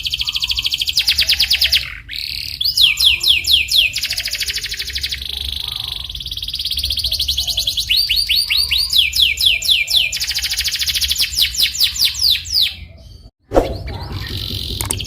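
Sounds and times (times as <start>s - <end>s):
canary singing: 0.0s - 15.0s
short sharp sweep: 13.4s - 15.0s.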